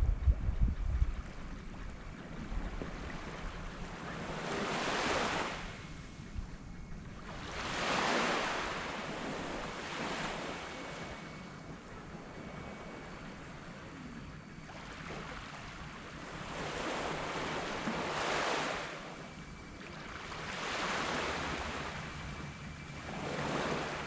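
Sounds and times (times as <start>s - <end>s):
small waves breaking on sand: 2.5s - 6.0s, 7.2s - 11.4s, 14.8s - 19.3s, 19.9s - 22.5s.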